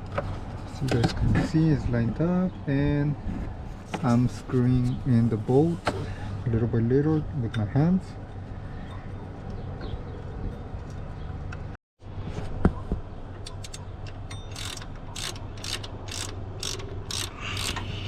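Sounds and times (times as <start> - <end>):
ratchet pawl clicking: 14.5 - 18.0.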